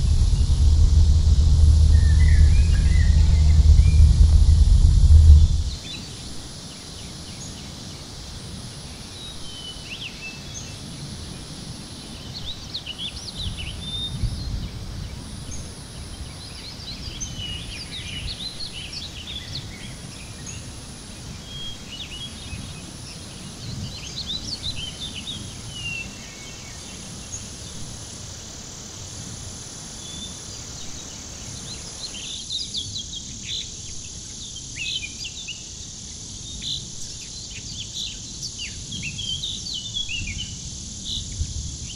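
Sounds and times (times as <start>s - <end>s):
high insect-like drone: 0.0s - 5.8s
low background rumble: 0.0s - 5.8s.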